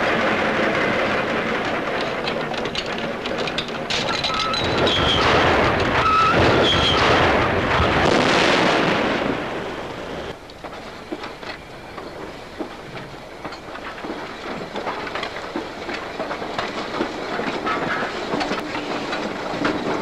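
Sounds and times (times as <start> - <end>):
railway wagons rumbling and clattering: 0.0 - 20.0
high metallic squeals: 4.1 - 7.2.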